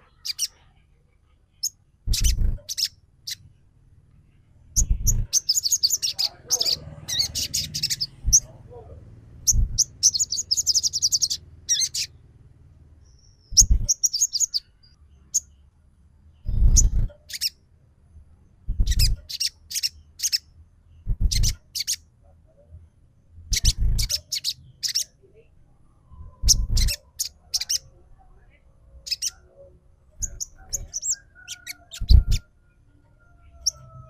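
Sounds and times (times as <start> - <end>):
bird sharp high chirps: 0.0 - 0.6, 1.6 - 3.4, 4.8 - 8.6, 9.4 - 12.2, 13.0 - 15.6, 16.4 - 17.6, 18.7 - 22.1, 23.5 - 25.2, 26.2 - 27.8, 29.0 - 29.4, 30.2 - 32.5
low hum: 0.9 - 6.0, 6.7 - 14.1, 16.4 - 17.2, 21.0 - 21.6, 25.7 - 27.0
bird rattling trill: 2.1 - 3.4, 18.7 - 19.5, 21.1 - 21.9.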